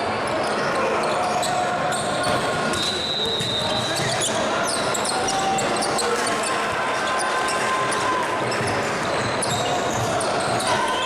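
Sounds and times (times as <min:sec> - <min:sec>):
shoe squeaks: 0:08.5 - 0:11.0.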